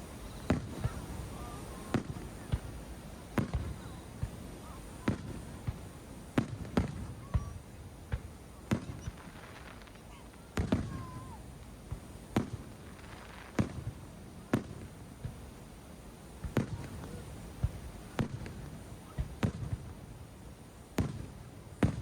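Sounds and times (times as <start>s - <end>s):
fireworks bursting booms: 0.0s - 15.6s, 16.4s - 20.1s, 21.0s - 22.0s
small fireworks pops: 0.0s - 15.6s, 16.4s - 20.1s, 21.0s - 22.0s.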